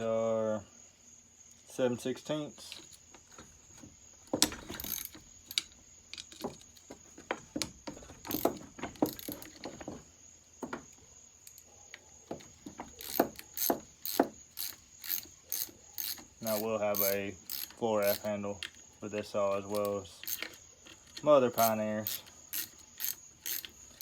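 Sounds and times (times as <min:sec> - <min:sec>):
socket ratchet clicking: 0:04.4 - 0:06.8, 0:08.2 - 0:09.7, 0:12.5 - 0:18.9, 0:19.5 - 0:24.0.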